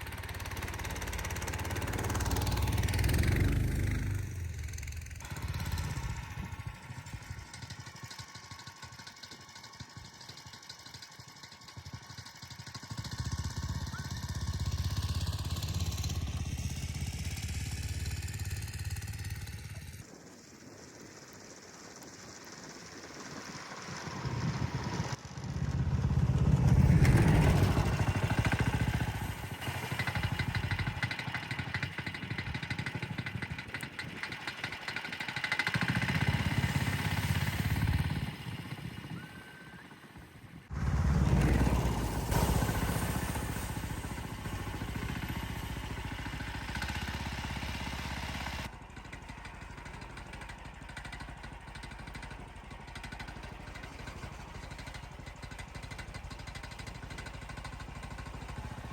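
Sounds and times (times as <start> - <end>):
vehicle engine revving: 0.0 - 7.8, 23.8 - 39.3, 40.7 - 48.7.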